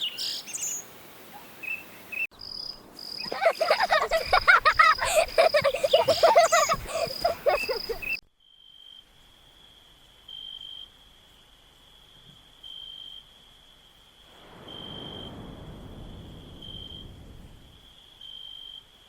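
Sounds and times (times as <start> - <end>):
dense chattering calls: 3.2 - 8.2.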